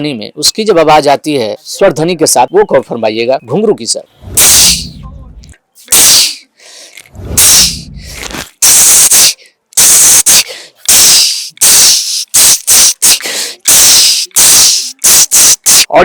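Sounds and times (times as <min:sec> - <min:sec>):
man mimicking ankle bells: 0:05.9 - 0:06.4, 0:08.6 - 0:15.9.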